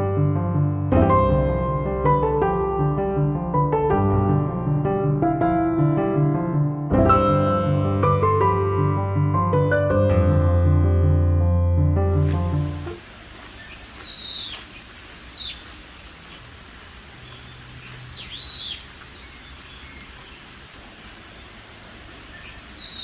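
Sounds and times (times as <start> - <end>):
high-pitched insect chorus: 12.0 - 23.0
bird calling whistled phrases: 12.2 - 23.0.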